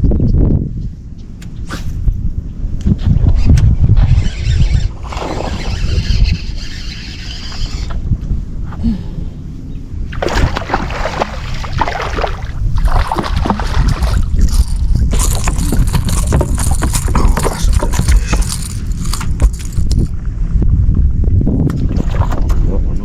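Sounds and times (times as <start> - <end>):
wind rumble on microphone: 0.0 - 23.0
water sloshing around boat: 10.1 - 20.2.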